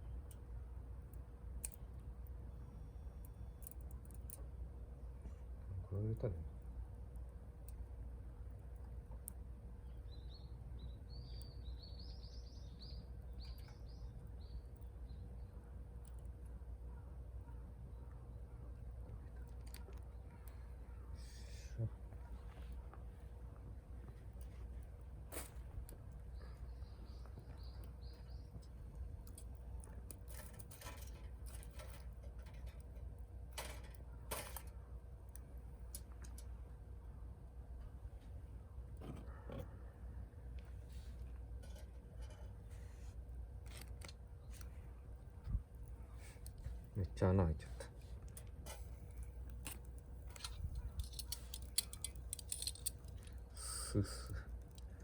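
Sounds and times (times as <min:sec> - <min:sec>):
wood fire crackling: 0:00.0 - 0:39.1, 0:40.3 - 0:55.0
small bird chirping: 0:09.8 - 0:15.6, 0:26.2 - 0:28.8.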